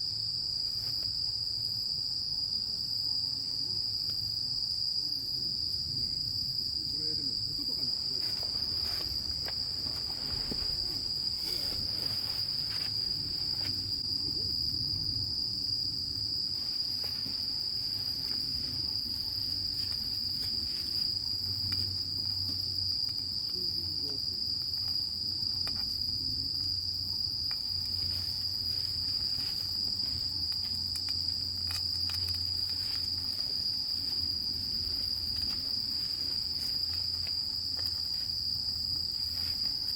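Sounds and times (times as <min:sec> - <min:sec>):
crickets chirring: 0:00.0 - 0:39.9
faint ticks: 0:30.4 - 0:33.5.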